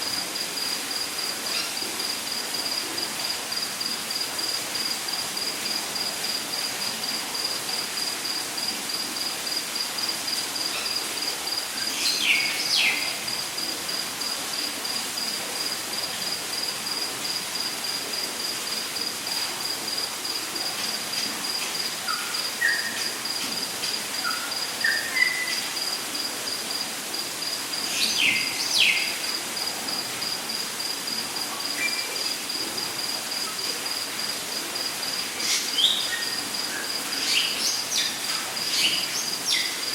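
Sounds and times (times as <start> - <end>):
insect trilling: 15.2 - 26.3, 27.1 - 33.2.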